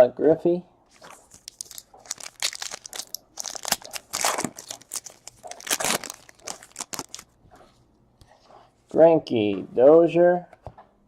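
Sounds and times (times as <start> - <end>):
foil wrapper crinkling and tearing: 0.9 - 7.3.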